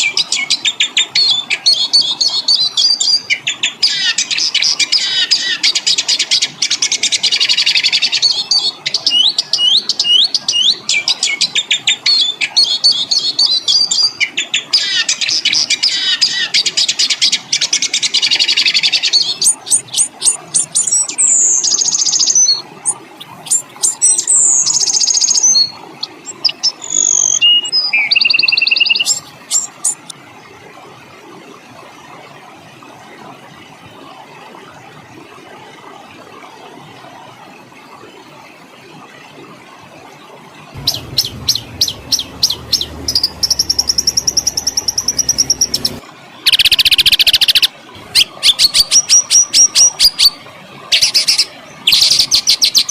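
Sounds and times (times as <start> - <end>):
songbird singing: 18.2 - 30.1, 40.8 - 49.3.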